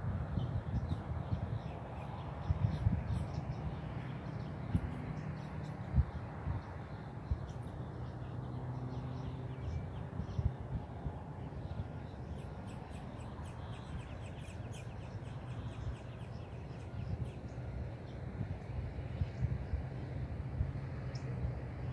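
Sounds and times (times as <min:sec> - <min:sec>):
steady low rumble: 0:00.0 - 0:21.9
birds calling: 0:11.4 - 0:18.2.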